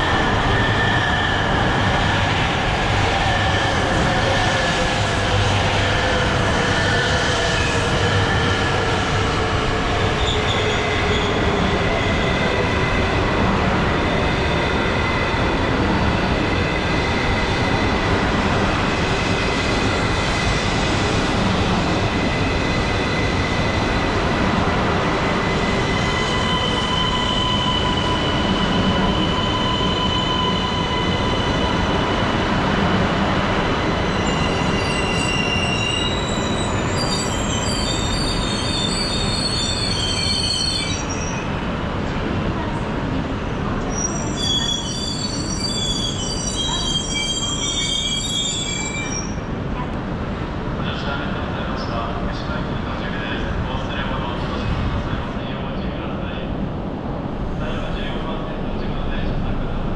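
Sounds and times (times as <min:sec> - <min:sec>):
train running noise: 0:00.0 - 0:59.9
wheel squeal: 0:34.2 - 0:41.4, 0:43.9 - 0:49.4.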